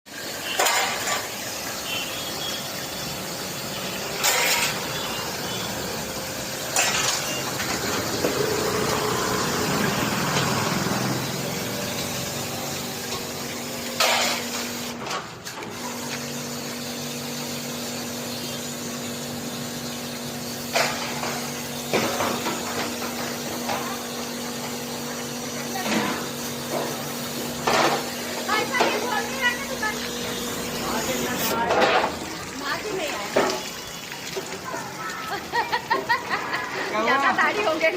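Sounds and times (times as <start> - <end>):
pressure water jet spraying: 0.1 - 37.9.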